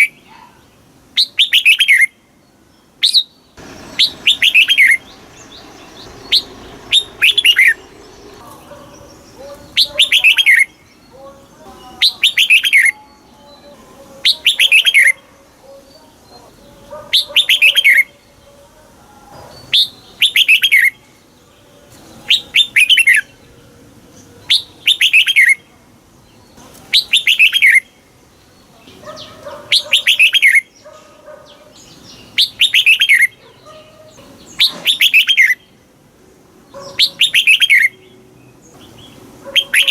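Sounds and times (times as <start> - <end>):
bird singing whistled notes: 1.2 - 11.2, 11.9 - 15.2, 16.2 - 18.1, 19.6 - 21.1, 22.2 - 23.5, 24.2 - 25.6, 26.3 - 28.0, 29.1 - 30.8, 31.8 - 33.7, 34.4 - 35.8, 36.8 - 39.9.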